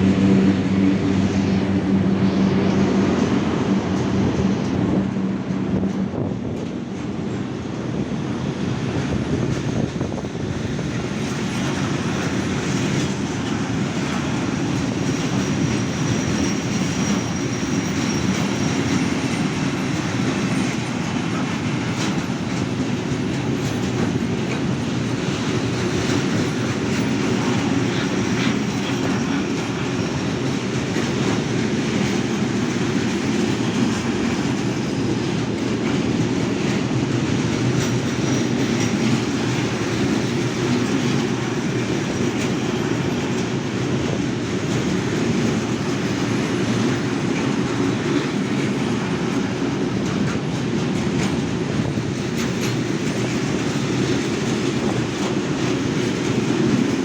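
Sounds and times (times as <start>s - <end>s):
train wheels rumbling on track: 0.0s - 57.0s
high-pitched wheel squeal: 15.0s - 19.9s.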